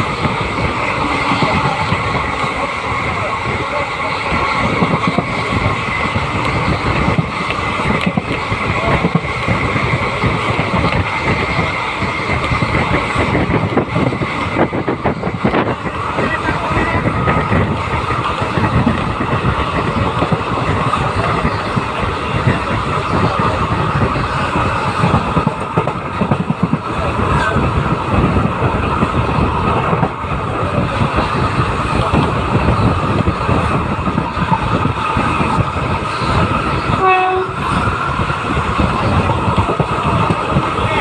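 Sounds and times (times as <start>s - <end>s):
train rumbling at speed: 0.0s - 41.0s
train horn blast: 36.9s - 37.6s.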